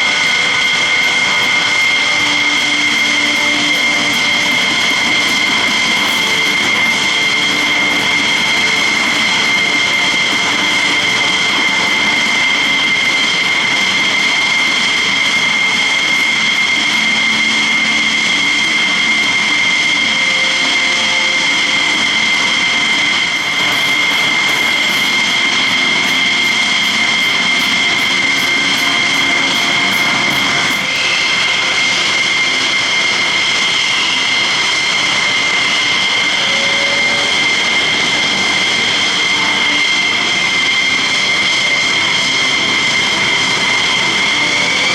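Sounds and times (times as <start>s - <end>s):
jet engines idling: 0.0s - 44.9s.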